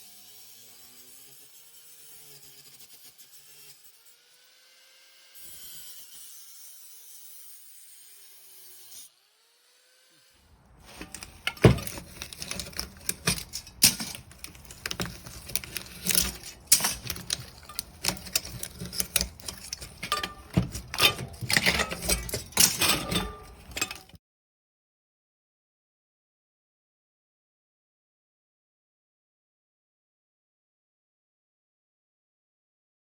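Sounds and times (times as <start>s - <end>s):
hard objects clattering: 10.7s - 24.2s.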